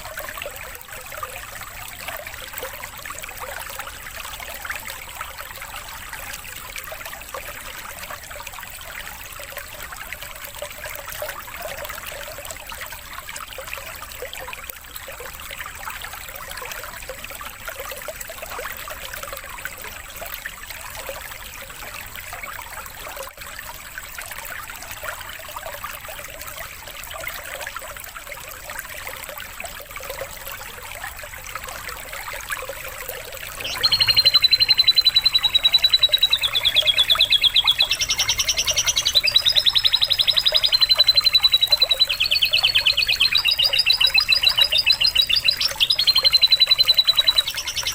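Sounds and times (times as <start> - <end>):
water trickling: 0.0 - 47.9
songbird trilling: 33.6 - 47.9.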